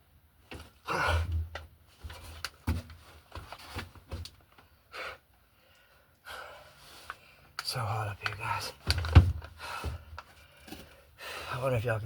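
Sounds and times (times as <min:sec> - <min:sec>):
knocks rustles and scrapes: 0:01.9 - 0:04.4.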